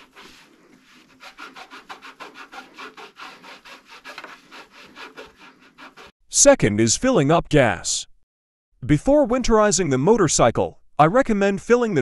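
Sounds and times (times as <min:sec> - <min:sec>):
rapid rubbing strokes: 0:00.0 - 0:06.2.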